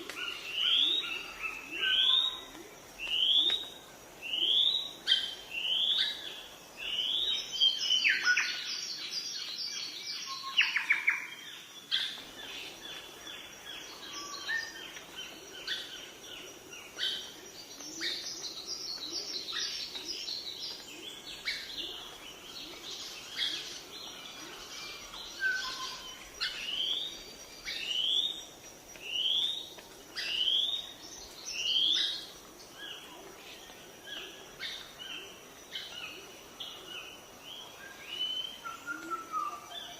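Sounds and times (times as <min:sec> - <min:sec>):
birds chirping: 0:11.8 - 0:39.9.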